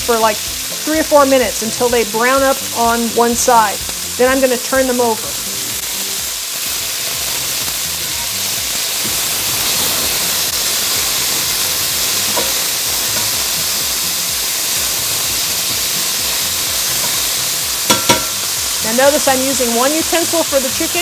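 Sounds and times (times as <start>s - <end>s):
food sizzling in pans: 0.0s - 21.0s.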